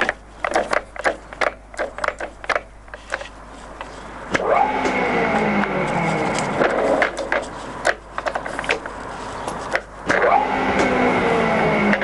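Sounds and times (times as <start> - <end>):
lathe running with gear whine: 4.4 - 7.1.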